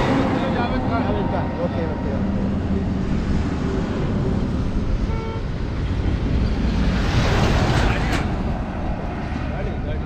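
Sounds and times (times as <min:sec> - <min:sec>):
road traffic rumbling: 0:00.0 - 0:10.0
vehicle horn toot: 0:05.0 - 0:05.5.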